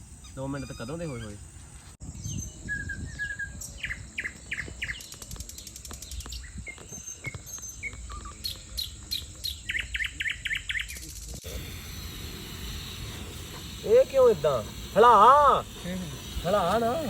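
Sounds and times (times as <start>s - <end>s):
birds chirping: 0.0s - 11.4s
faint high hiss: 11.0s - 17.0s.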